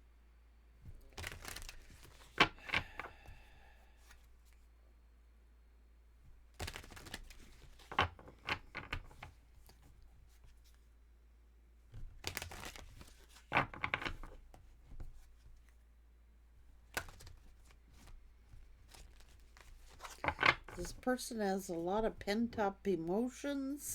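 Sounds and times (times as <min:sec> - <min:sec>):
cards being shuffled: 0:01.1 - 0:03.3, 0:06.5 - 0:10.8, 0:11.9 - 0:15.7, 0:16.8 - 0:21.0.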